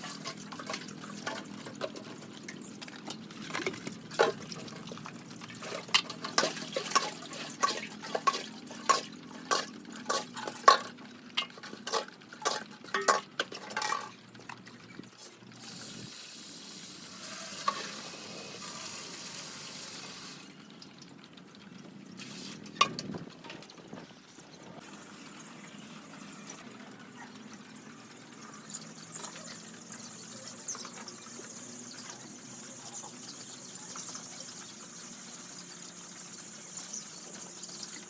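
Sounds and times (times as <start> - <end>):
clatter of hard objects: 0.0 - 15.5.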